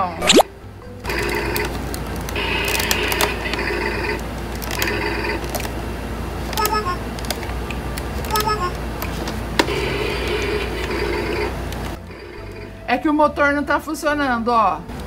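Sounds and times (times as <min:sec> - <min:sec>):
toy engine failing to start: 0:01.1 - 0:01.7.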